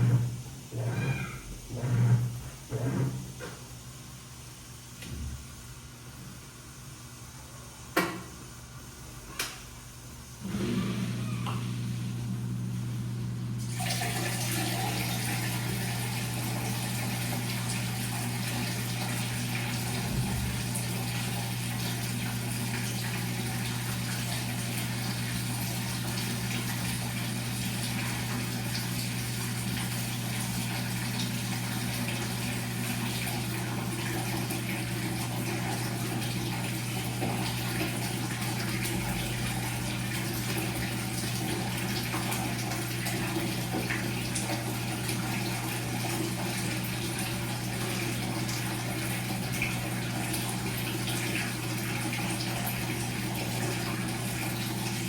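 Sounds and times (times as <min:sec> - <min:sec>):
water rushing through machine: 0:00.0 - 0:03.2, 0:10.4 - 0:55.0
washing machine motor hum: 0:00.0 - 0:55.0.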